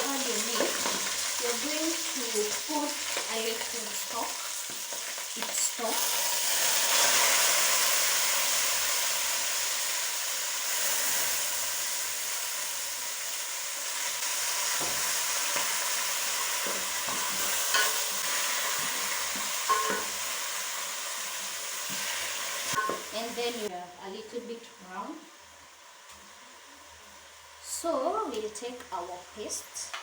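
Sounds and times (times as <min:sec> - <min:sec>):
chicken sizzling in a pot: 0:00.0 - 0:30.0
spoon knocking against pot: 0:19.7 - 0:20.1.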